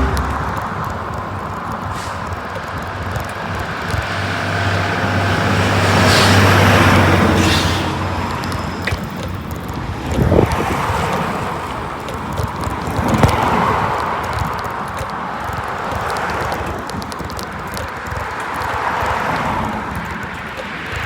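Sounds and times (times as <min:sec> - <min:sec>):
motor vehicle passing: 0:00.0 - 0:21.0
road noise: 0:00.0 - 0:21.0
wind: 0:00.0 - 0:21.0.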